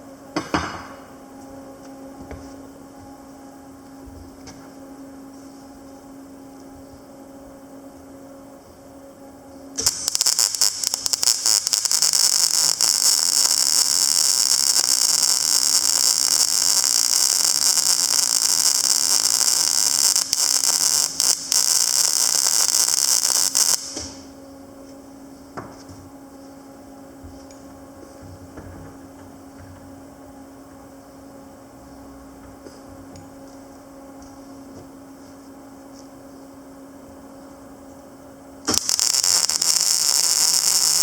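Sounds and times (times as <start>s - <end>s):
welder machine hum: 0.0s - 41.0s
welding arc crackling hiss: 9.8s - 24.4s, 38.6s - 41.0s.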